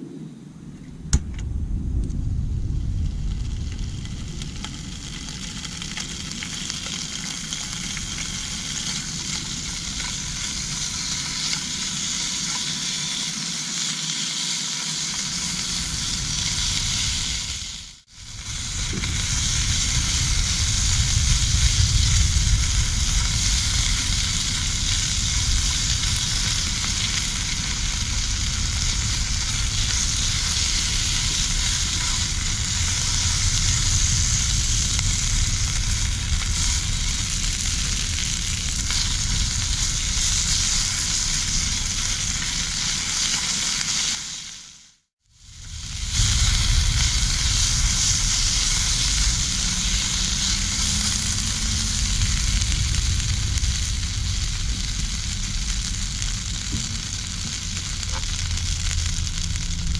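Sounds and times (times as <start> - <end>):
camp stove low rumble: 0.6 - 44.2, 45.3 - 59.9
food sizzling in a frying pan: 3.0 - 59.9.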